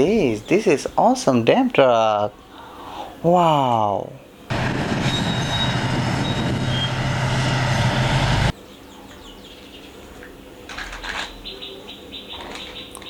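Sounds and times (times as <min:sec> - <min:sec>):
truck engine humming: 0:04.5 - 0:08.5.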